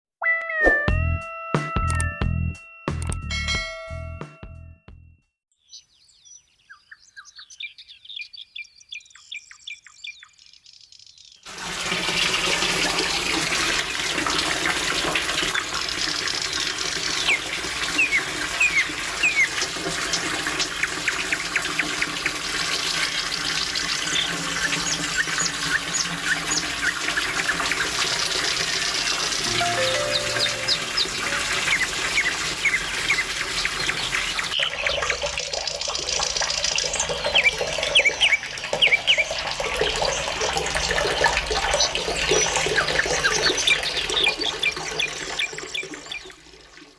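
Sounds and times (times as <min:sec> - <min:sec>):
birds chirping and trilling: 0:05.5 - 0:11.4, 0:15.5 - 0:35.0, 0:36.8 - 0:40.4, 0:41.6 - 0:46.3
waterfall rushing: 0:29.5 - 0:32.3.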